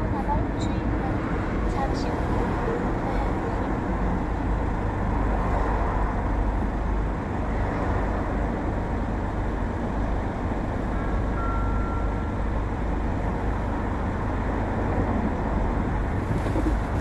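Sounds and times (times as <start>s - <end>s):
vehicle road and engine noise: 0.0s - 17.0s
faint high tone: 11.4s - 12.3s.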